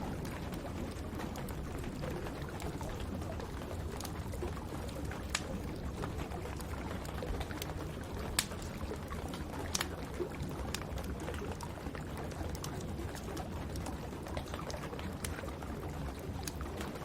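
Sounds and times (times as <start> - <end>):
steady rush of rain: 0.0 - 10.8
wood fire crackling: 0.0 - 17.0.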